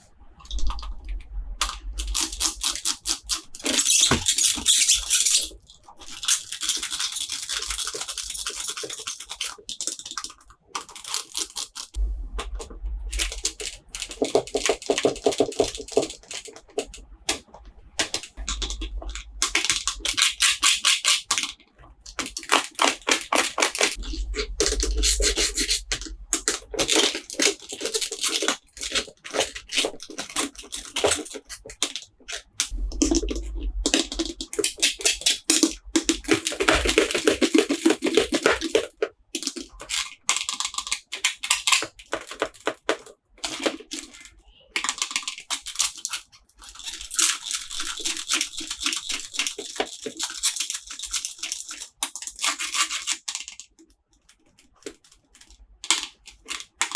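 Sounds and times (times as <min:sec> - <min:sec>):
dull bumps: 0:12.0 - 0:14.0
packaging crinkling: 0:18.0 - 0:32.7.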